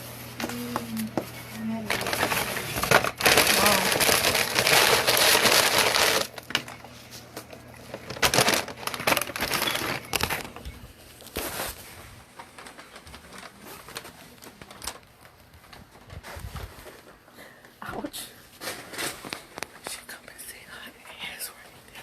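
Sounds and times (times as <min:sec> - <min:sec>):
food crunching: 0:00.4 - 0:11.4
wrapper crinkling: 0:00.4 - 0:17.2.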